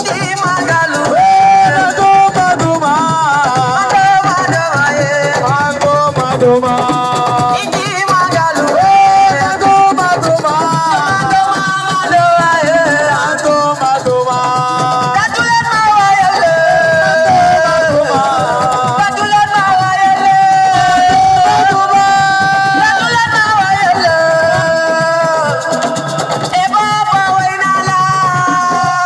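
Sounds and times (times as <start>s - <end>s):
busy percussion: 0.0s - 29.0s.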